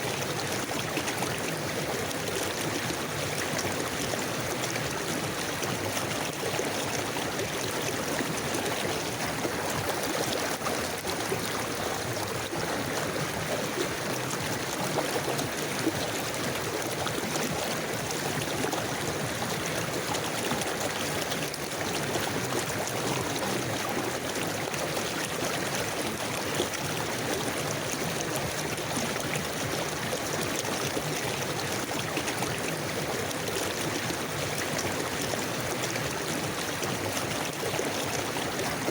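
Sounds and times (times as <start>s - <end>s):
river water flowing over stones: 0.0s - 38.9s.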